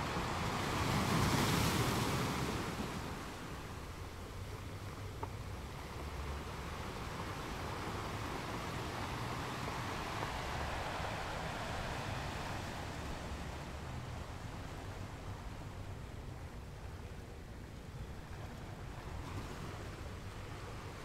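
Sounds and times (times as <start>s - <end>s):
surf washing onto beach: 0.0s - 4.6s, 5.2s - 16.0s
wind rumble on microphone: 0.0s - 21.0s.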